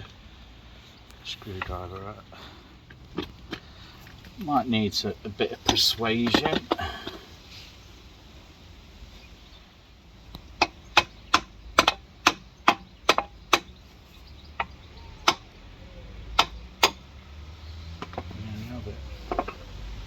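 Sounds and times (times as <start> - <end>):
hammer knocking on metal strut: 10.6 - 13.8, 16.3 - 17.0, 19.3 - 19.6.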